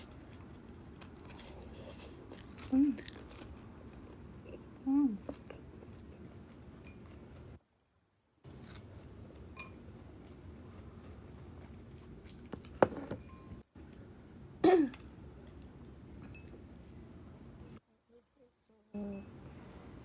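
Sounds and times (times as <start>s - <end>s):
crunch of eating: 0.0s - 7.6s, 8.5s - 9.2s.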